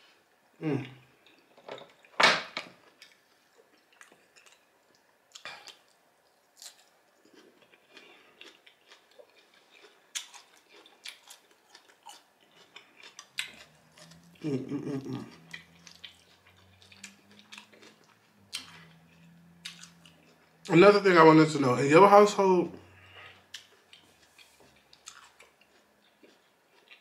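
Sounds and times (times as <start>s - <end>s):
wet chewing and lip smacks: 2.9s - 14.4s, 15.3s - 20.7s, 23.3s - 27.0s.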